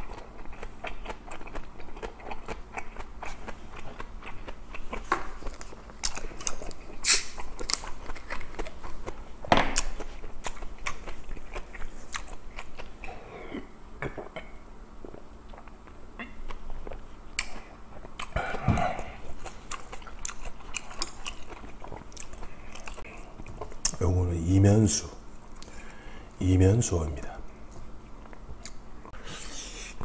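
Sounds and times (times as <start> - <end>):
chewing food: 0.0 - 13.1, 15.0 - 24.0.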